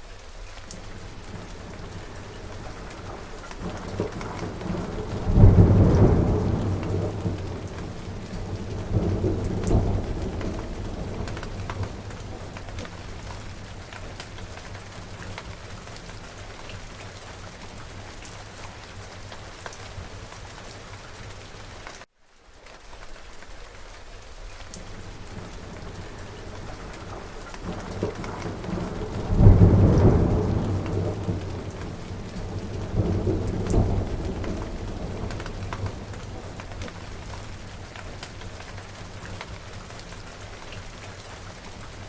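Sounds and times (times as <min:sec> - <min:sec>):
steady rain: 0:00.0 - 0:42.0
thunder rumbling: 0:00.9 - 0:18.3, 0:24.8 - 0:40.3.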